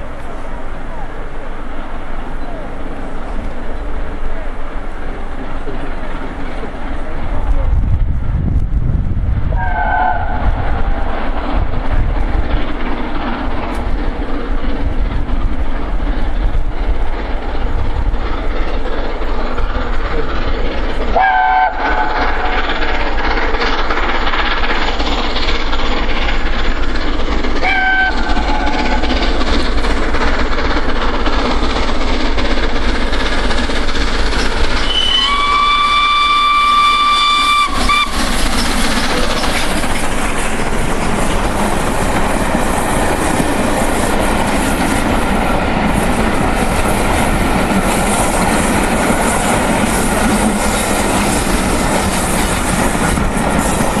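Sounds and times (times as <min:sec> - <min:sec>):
steam locomotive exhaust and running: 0:00.0 - 0:54.0
steam whistle blasts: 0:09.6 - 0:10.5, 0:21.2 - 0:22.3, 0:27.6 - 0:29.0, 0:34.8 - 0:38.2.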